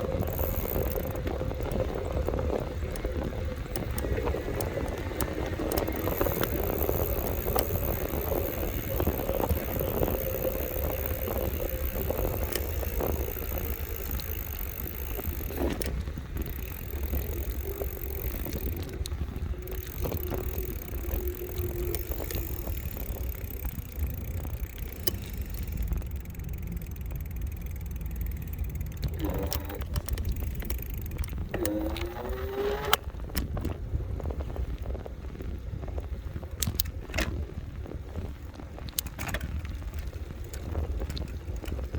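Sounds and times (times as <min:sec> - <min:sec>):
faint steady whine: 0:00.0 - 0:33.3
rattles and clicks: 0:00.0 - 0:33.8, 0:38.8 - 0:41.9
wind rumble on microphone: 0:00.0 - 0:41.9.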